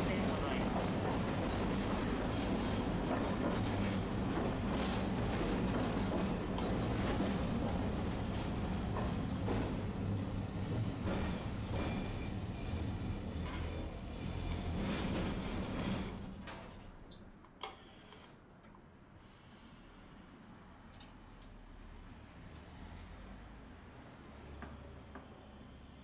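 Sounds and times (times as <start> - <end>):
streetcar wheels and motor rumbling: 0.0 - 17.5.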